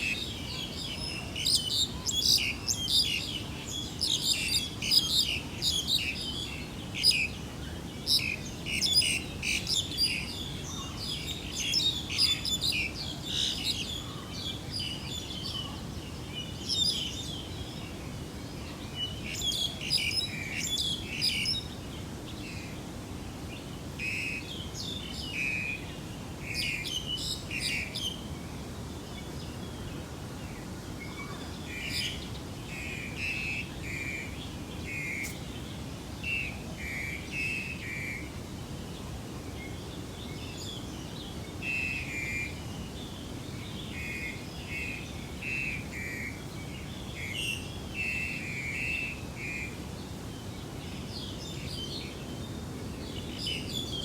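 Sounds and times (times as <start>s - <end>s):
small birds chirping: 0.0s - 22.9s, 23.5s - 38.3s.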